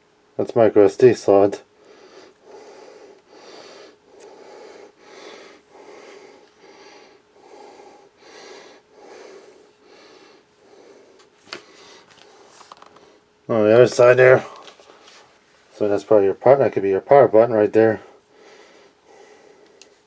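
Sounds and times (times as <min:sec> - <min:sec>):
person breathing softly: 0:01.8 - 0:13.3, 0:18.1 - 0:20.0.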